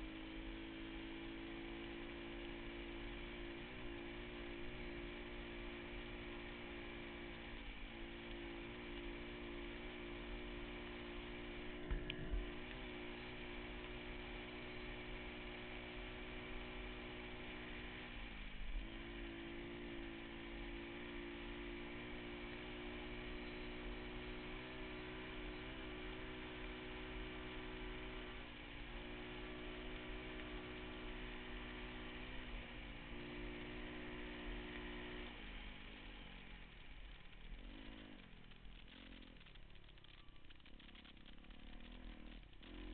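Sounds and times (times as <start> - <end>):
pit bike engine running: 0.0 - 42.9
dull low thumps: 11.8 - 12.7.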